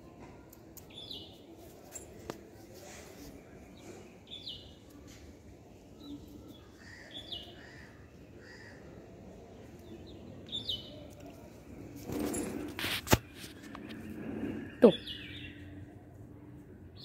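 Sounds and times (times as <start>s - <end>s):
steady outdoor hush: 0.0s - 17.0s
small birds chirping: 0.5s - 1.6s, 3.3s - 11.6s, 13.2s - 16.0s.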